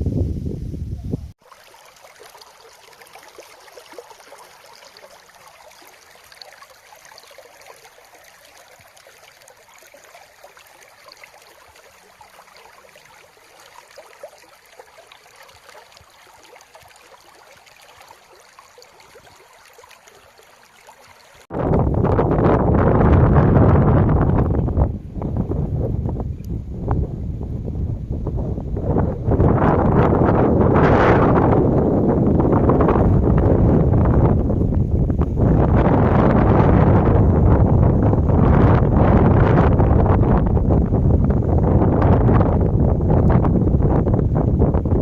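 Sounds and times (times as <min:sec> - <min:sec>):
wind buffeting microphone: 0:00.0 - 0:01.4, 0:21.5 - 0:45.0
stream running over rocks: 0:01.3 - 0:21.8.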